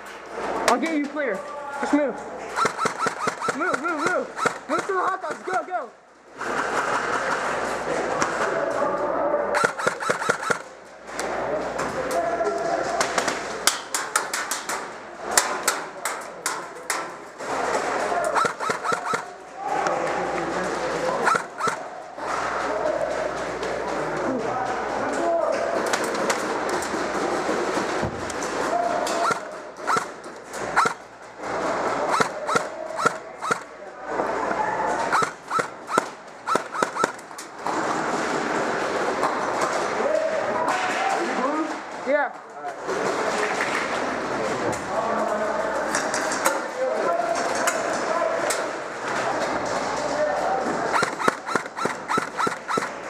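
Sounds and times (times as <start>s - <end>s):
steady background noise: 0.0s - 53.0s
airsoft gun shots: 2.6s - 5.6s, 9.5s - 10.7s, 18.3s - 19.4s, 21.2s - 21.9s, 29.1s - 31.1s, 32.1s - 33.7s, 35.1s - 37.3s, 50.9s - 53.0s.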